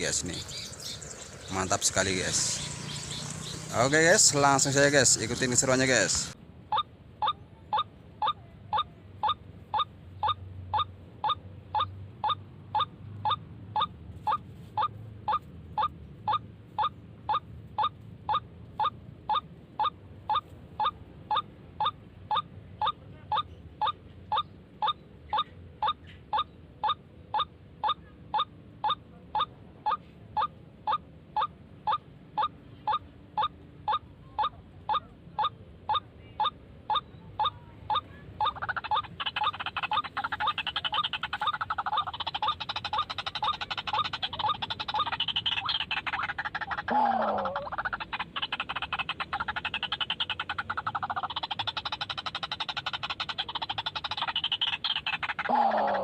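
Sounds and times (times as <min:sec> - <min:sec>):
waterhen call repeated: 0:33.4 - 0:56.0.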